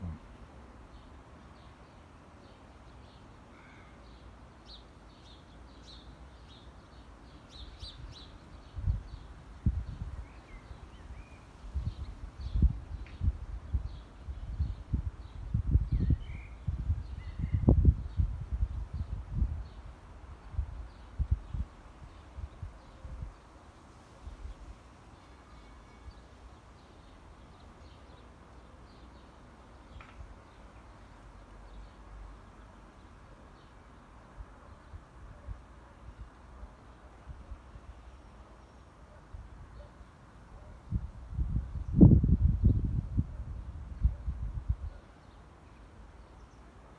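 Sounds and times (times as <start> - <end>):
low steady background rumble: 0.0 - 1.0.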